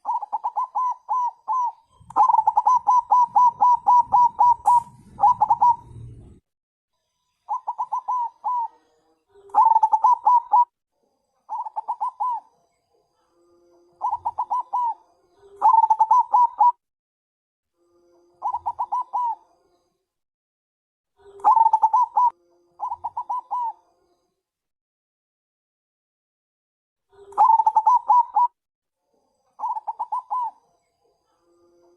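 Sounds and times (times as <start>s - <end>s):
dove cooing: 0.0s - 6.4s, 7.5s - 8.8s, 9.4s - 10.7s, 11.5s - 12.5s, 14.0s - 16.8s, 18.4s - 19.4s, 21.2s - 23.8s, 27.1s - 28.6s, 29.6s - 30.6s.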